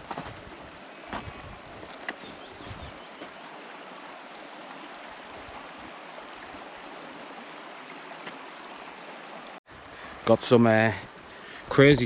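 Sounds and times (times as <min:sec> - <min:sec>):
river water rushing: 0:00.0 - 0:11.7.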